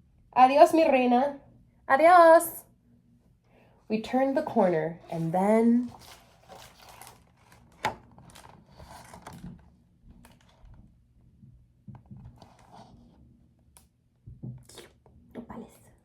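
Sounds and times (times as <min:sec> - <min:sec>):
paper rustling: 0:04.3 - 0:10.8, 0:12.3 - 0:13.1
book pages turning: 0:04.3 - 0:10.9, 0:12.1 - 0:13.2.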